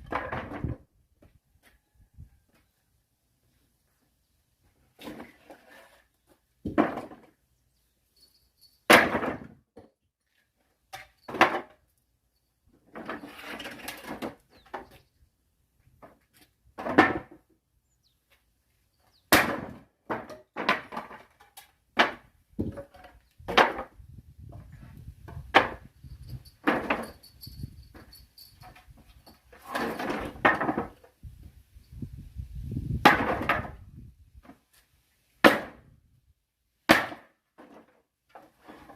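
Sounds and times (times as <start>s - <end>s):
axe chopping logs: 8.9s - 9.6s, 19.3s - 21.4s, 22.0s - 24.0s, 25.4s - 25.9s, 33.0s - 33.8s, 35.4s - 36.0s, 36.9s - 37.7s.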